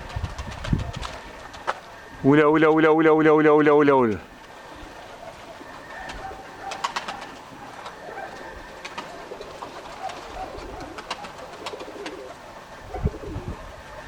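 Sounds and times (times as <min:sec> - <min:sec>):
wind buffeting microphone: 0:00.0 - 0:02.4, 0:12.8 - 0:13.9
pigeons cooing: 0:00.0 - 0:14.0.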